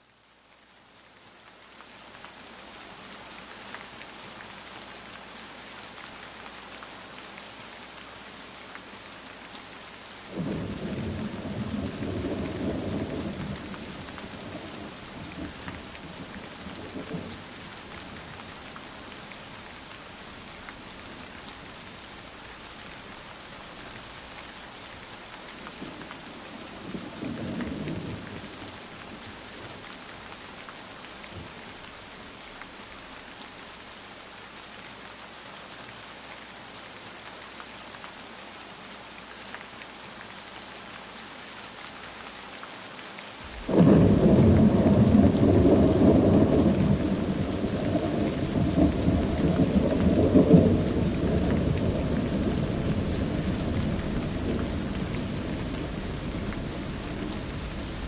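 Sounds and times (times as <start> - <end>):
heavy rain falling: 0.1 - 58.0
thunder rumbling: 43.5 - 58.0.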